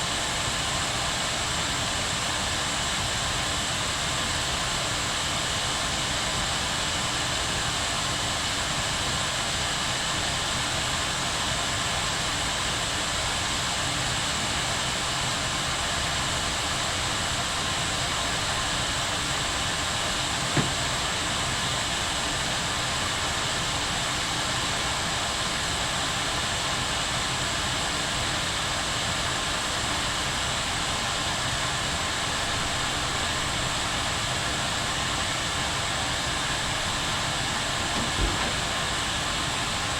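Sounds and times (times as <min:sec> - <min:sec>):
kettle boiling: 0:16.5 - 0:25.6, 0:30.4 - 0:39.9.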